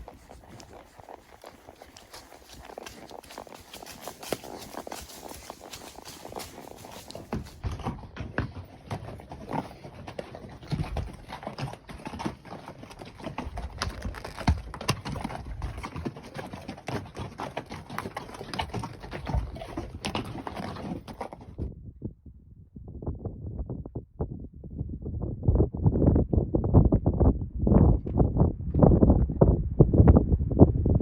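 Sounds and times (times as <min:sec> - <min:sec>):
horse hooves clip-clopping: 0:00.0 - 0:21.7.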